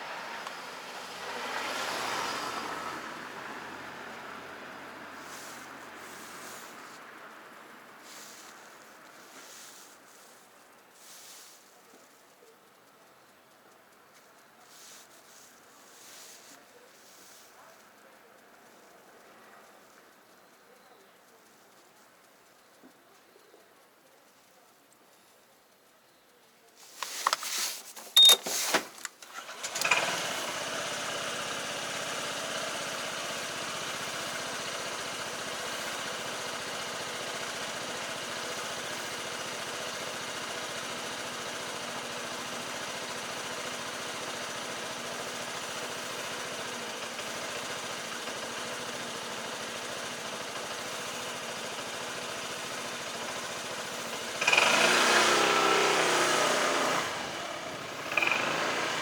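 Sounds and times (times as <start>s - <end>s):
motorcycle engine revving: 0.0s - 7.0s, 29.2s - 59.0s
motorcycle engine starting and idling: 0.0s - 21.8s, 26.7s - 59.0s.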